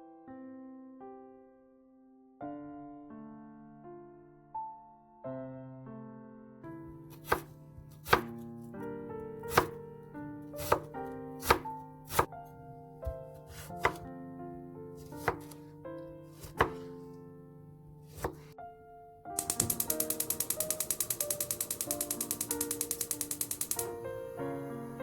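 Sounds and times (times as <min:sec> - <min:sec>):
soft piano music: 0:00.0 - 0:25.0
knife chopping food: 0:07.1 - 0:08.5, 0:09.4 - 0:09.8, 0:10.5 - 0:12.3, 0:13.0 - 0:14.1, 0:15.0 - 0:17.1, 0:18.0 - 0:18.6, 0:19.4 - 0:23.9.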